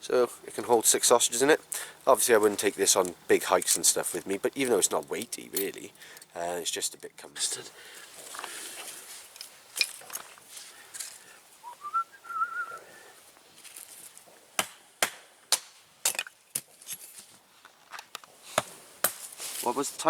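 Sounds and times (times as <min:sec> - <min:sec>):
person whistling: 0:11.6 - 0:12.9.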